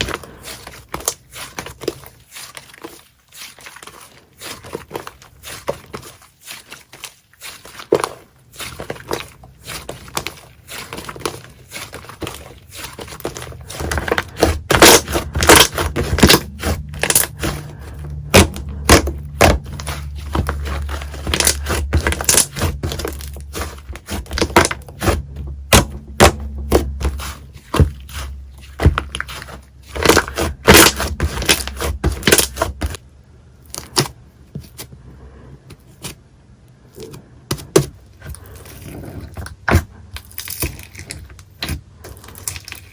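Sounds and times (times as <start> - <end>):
slime squished by hand: 0.0 - 33.0
low hum: 13.2 - 33.6.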